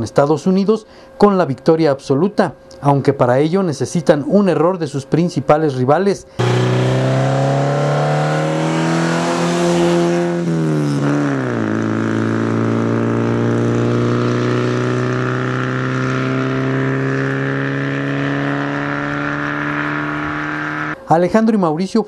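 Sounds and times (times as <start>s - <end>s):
car engine passing at speed: 6.4s - 21.0s.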